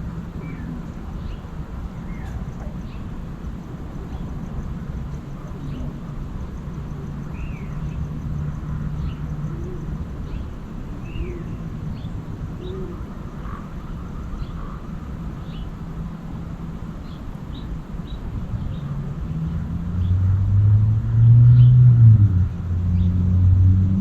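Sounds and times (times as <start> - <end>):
steady low hum: 0.0 - 24.0
wild birds chirping: 0.1 - 20.4
low arched bird calls: 8.9 - 15.8.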